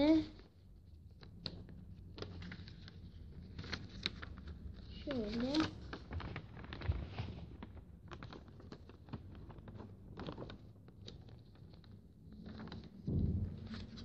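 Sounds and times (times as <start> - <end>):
paper being folded and creased: 0.0 - 14.0
low bump: 13.1 - 14.0.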